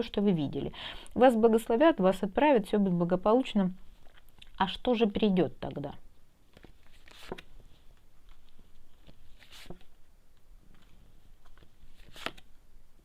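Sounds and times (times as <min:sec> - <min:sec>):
cards rustling and tapping: 0:06.5 - 0:10.0, 0:10.7 - 0:12.6.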